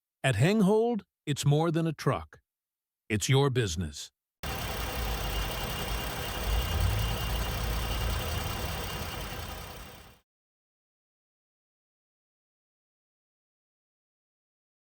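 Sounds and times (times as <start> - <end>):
pickup engine idling: 4.4 - 10.1.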